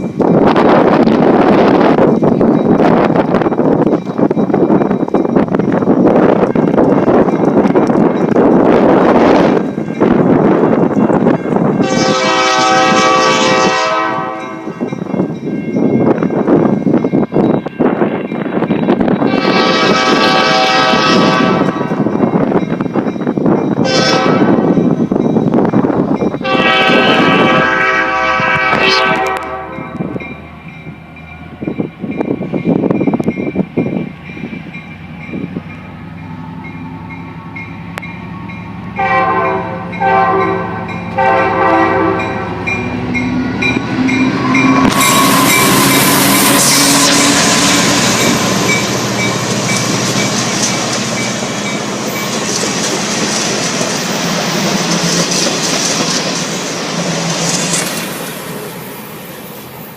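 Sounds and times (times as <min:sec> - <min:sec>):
wind buffeting microphone: 0:00.0 - 0:58.7
train wheels rushing past: 0:00.0 - 0:59.9
train horn: 0:11.8 - 0:14.9, 0:19.2 - 0:22.0, 0:23.8 - 0:24.8, 0:26.4 - 0:30.2, 0:39.0 - 0:43.0, 0:43.6 - 0:48.7.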